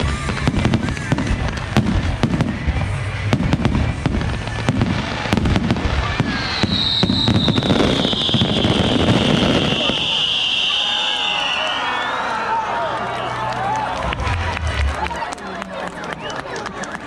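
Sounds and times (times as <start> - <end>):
fireworks bangs and crackles: 0.0 - 11.6
high steady whistle: 6.3 - 12.6.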